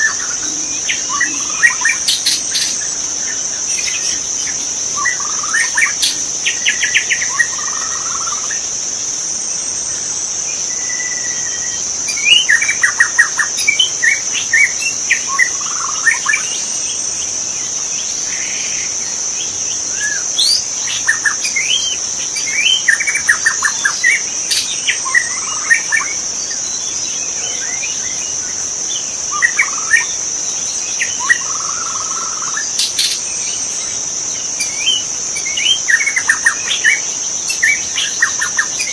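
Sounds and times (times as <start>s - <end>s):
high-pitched insect drone: 0.0s - 38.9s.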